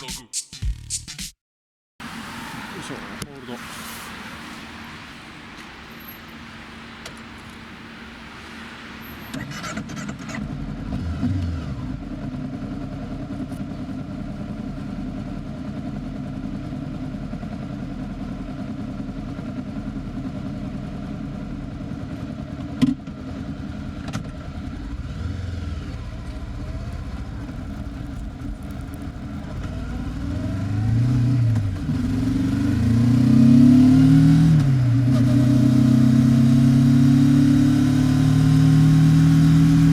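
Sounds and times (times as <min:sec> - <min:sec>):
motorcycle engine revving: 0:09.0 - 0:39.9.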